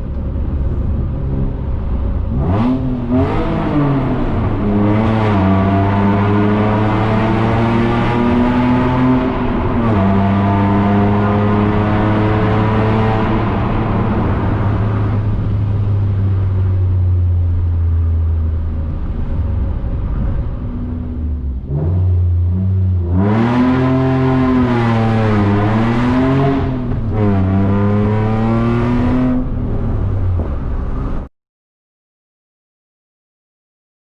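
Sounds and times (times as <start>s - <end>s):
car engine revving: 0.0s - 31.3s.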